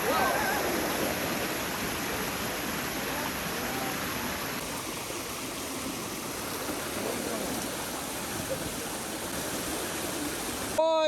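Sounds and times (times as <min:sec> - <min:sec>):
flowing water rushing: 0:00.0 - 0:10.8.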